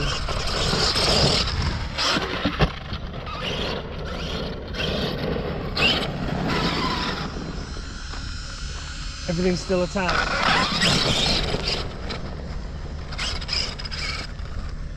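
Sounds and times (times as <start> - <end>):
electric motor whine: 0.0 - 14.9
gravel crunching: 0.0 - 14.9
tyres scraping: 10.1 - 14.9.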